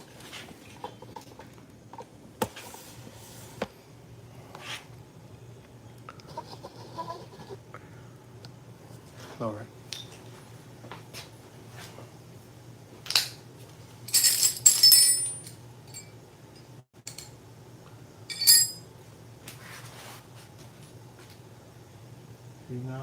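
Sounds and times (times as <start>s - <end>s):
metal hand tools clinking: 14.1s - 16.1s, 18.3s - 18.8s.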